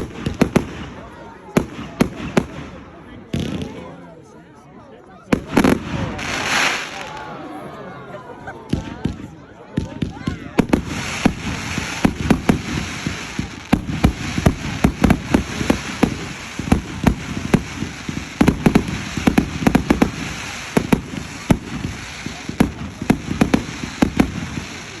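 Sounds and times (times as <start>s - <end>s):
fireworks bangs and pops: 0.0s - 4.0s, 5.3s - 7.3s, 8.7s - 25.0s
crackling hiss: 10.6s - 25.0s.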